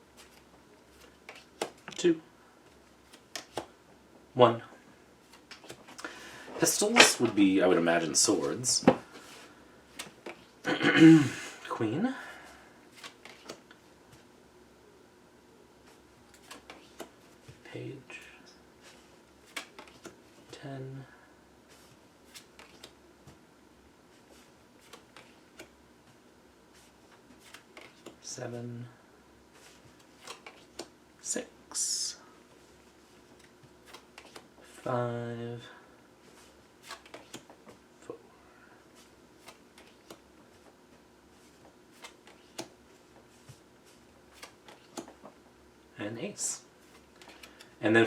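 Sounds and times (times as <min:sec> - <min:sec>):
cards clicking and slapping: 0:03.1 - 0:03.7, 0:13.0 - 0:13.8, 0:16.3 - 0:17.2, 0:19.5 - 0:20.2, 0:22.3 - 0:23.0, 0:24.8 - 0:25.8, 0:27.4 - 0:28.2, 0:29.9 - 0:30.9, 0:33.4 - 0:34.5, 0:36.8 - 0:37.8, 0:39.4 - 0:40.7, 0:41.9 - 0:42.8, 0:44.3 - 0:45.3, 0:46.9 - 0:47.7
cards clicking: 0:19.5 - 0:20.2, 0:36.8 - 0:37.6, 0:44.3 - 0:45.3, 0:46.9 - 0:47.7.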